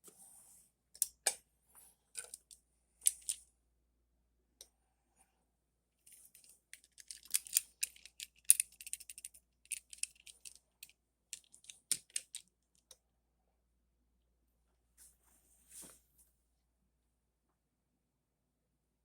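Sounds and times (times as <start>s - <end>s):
toy cars clicking and rattling: 6.1s - 12.5s.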